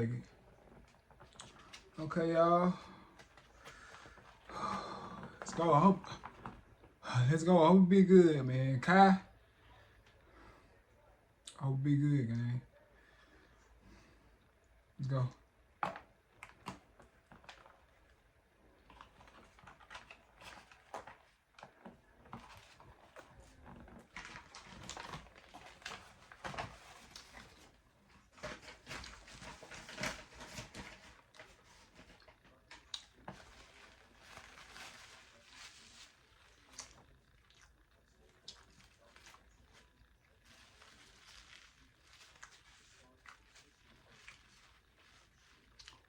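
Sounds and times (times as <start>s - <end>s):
person chewing food: 32.2s - 35.0s, 35.7s - 46.0s.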